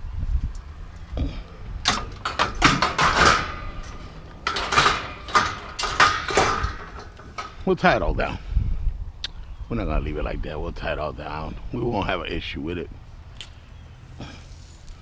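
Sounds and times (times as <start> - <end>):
metal clanking and knocking: 1.8 - 7.7
metal scraping on metal: 1.9 - 7.8.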